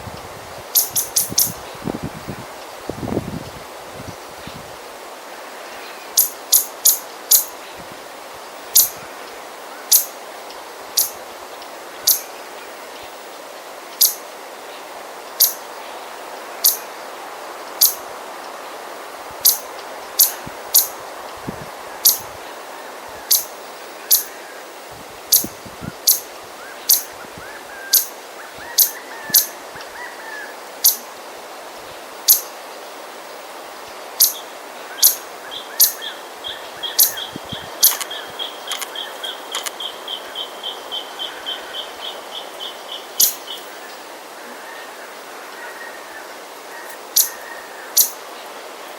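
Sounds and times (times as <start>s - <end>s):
breeze in trees: 0.0s - 48.9s
bird scolding calls: 0.8s - 1.6s, 6.2s - 7.6s, 8.8s - 9.0s, 9.8s - 10.2s, 11.0s - 11.2s, 12.0s - 12.3s, 14.0s - 14.2s, 15.4s - 15.7s, 16.6s - 16.9s, 17.8s - 18.0s, 19.4s - 21.0s, 22.0s - 22.3s, 23.2s - 24.4s, 26.1s - 27.2s, 27.8s - 29.6s, 34.2s - 34.4s, 35.0s - 35.2s, 35.8s - 41.8s, 42.6s - 43.7s, 46.8s - 48.2s
faint lower chirps: 0.8s - 1.6s.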